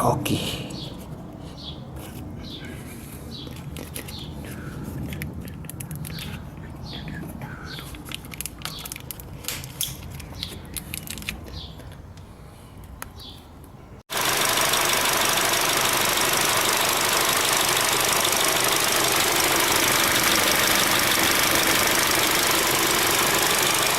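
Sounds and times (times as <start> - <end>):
hand handling clicks: 5.0 - 7.2, 7.8 - 12.3
car engine idling loudly: 14.1 - 23.9.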